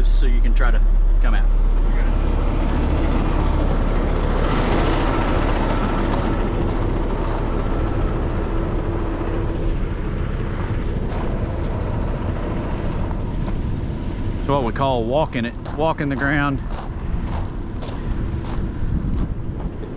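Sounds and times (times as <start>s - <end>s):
wind buffeting microphone: 1.0s - 19.9s
tow truck diesel engine idling: 1.5s - 14.4s
footsteps on gravel: 4.5s - 19.8s.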